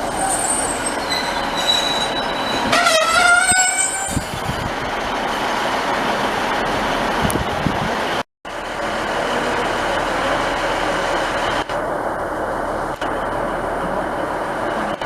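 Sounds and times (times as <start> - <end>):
train running: 0.0 - 15.0.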